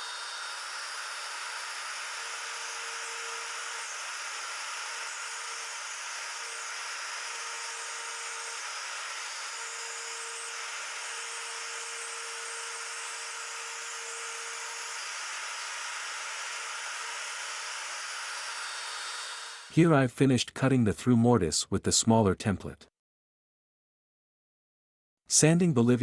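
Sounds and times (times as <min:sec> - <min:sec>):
handheld router cutting wood: 0:00.0 - 0:19.7.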